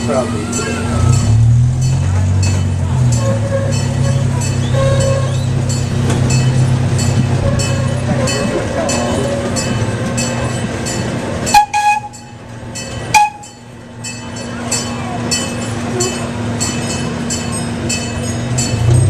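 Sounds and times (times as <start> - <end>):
ride train running: 0.0 - 19.0
train horn toots: 3.1 - 5.5, 7.3 - 8.5, 11.5 - 12.4, 13.1 - 13.6.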